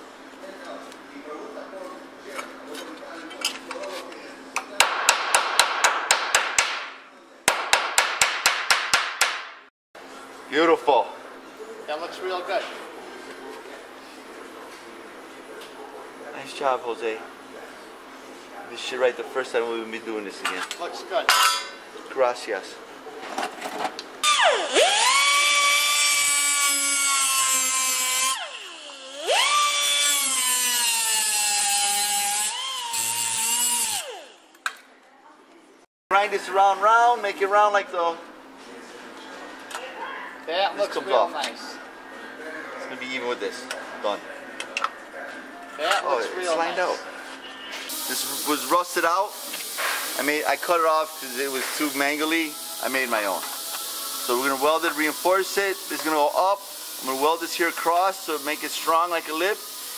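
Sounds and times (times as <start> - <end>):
hammer striking sheet steel: 4.8 - 9.7
grinder whining on metal: 24.2 - 34.5.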